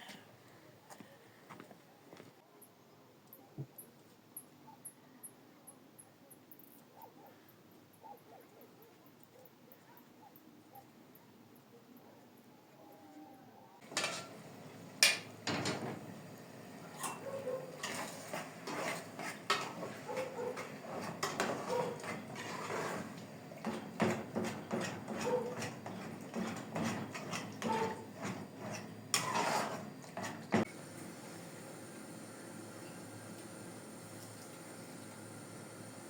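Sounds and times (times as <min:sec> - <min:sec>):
dishes and utensils clattering: 0:13.8 - 0:16.0, 0:16.9 - 0:30.7.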